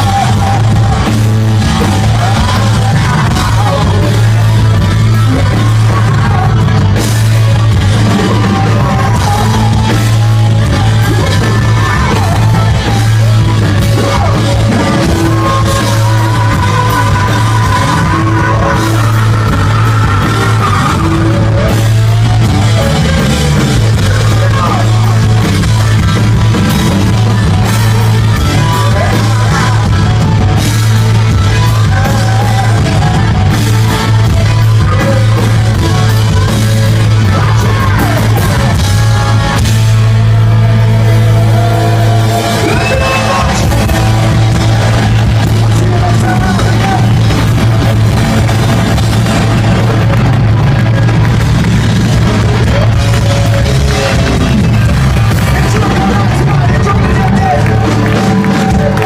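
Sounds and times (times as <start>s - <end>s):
booming bass: 0.0s - 59.0s
person singing: 0.0s - 59.0s
rock band playing live: 0.0s - 59.0s.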